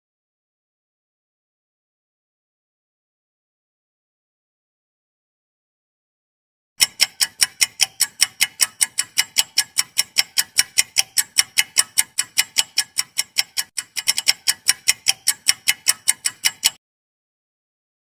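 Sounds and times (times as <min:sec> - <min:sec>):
fast clock ticking: 0:06.8 - 0:16.8.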